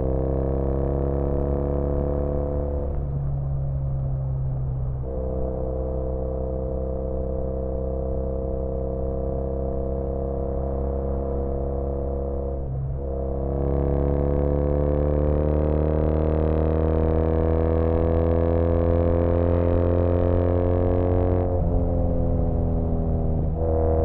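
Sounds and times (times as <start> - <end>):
motorcycle engine cruising: 10.7 - 24.0.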